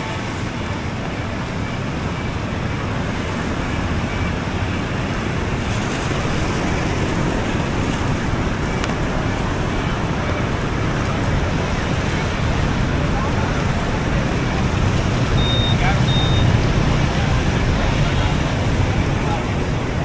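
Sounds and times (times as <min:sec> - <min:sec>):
road traffic: 0:00.0 - 0:20.0
surf: 0:00.0 - 0:20.0.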